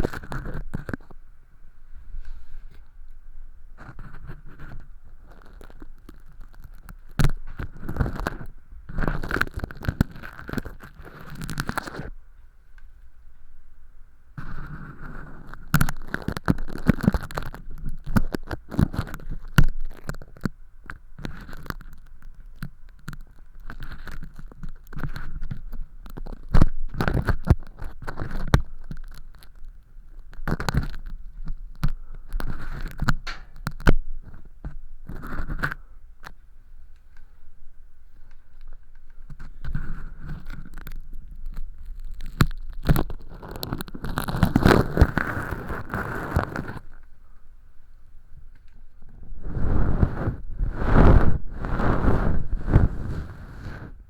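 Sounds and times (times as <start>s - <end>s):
ear pick scratching: 0.0s - 1.2s, 3.8s - 12.1s, 14.4s - 20.4s, 30.4s - 35.9s, 39.3s - 47.0s, 49.2s - 54.0s.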